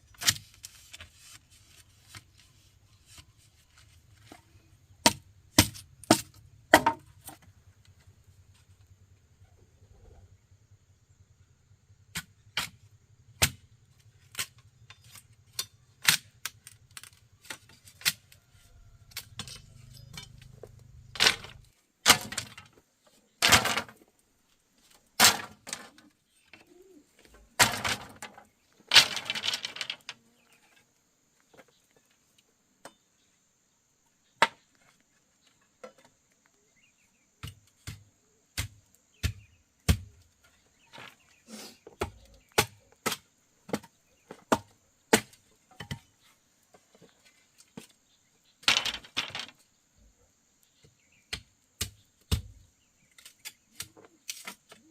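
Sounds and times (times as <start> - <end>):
scraping and rustling: 0.1 - 4.7, 24.8 - 30.9.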